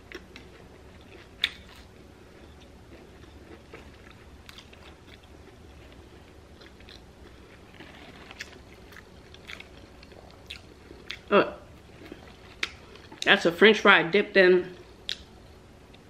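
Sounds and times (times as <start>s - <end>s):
chewing crunchy food: 0.0s - 13.3s
crisp crunches: 6.7s - 11.2s.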